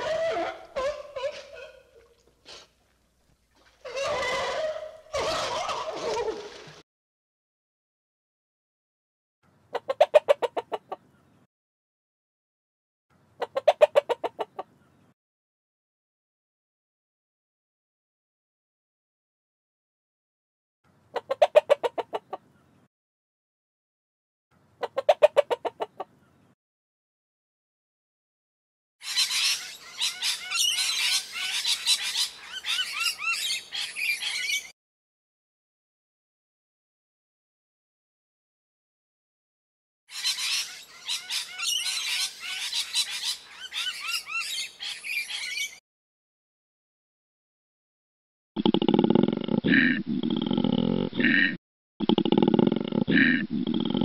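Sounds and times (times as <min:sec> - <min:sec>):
bird squawks and chirps: 0:29.0 - 0:34.7, 0:40.1 - 0:45.8.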